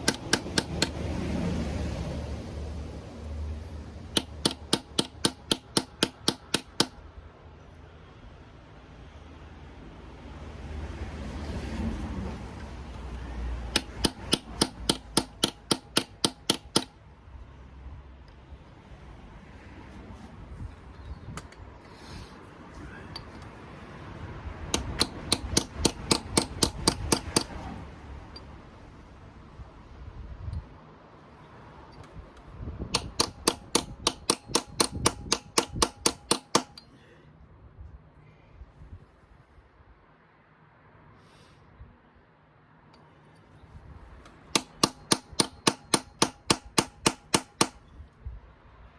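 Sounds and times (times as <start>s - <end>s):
hammer tapping metal socket: 0.0s - 1.0s, 4.2s - 7.0s, 13.7s - 17.0s, 24.7s - 27.6s, 32.9s - 36.9s, 44.5s - 47.8s.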